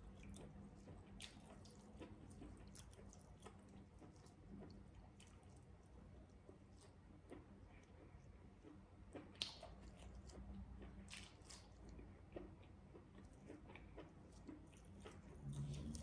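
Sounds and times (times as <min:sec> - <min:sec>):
person chewing: 0:00.0 - 0:16.0
fingers tearing fried food: 0:08.7 - 0:16.0.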